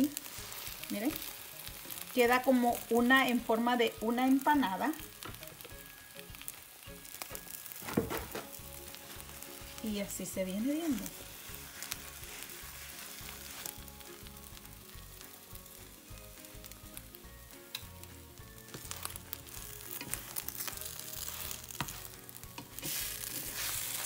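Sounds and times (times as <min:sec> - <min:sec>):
omelette sizzling in pan: 0:00.0 - 0:24.0.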